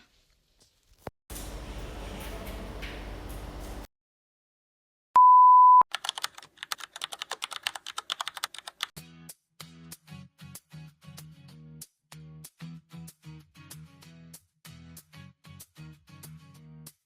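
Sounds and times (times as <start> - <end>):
loud steady beep: 5.2 - 5.8
keyboard typing clicks: 5.9 - 8.9.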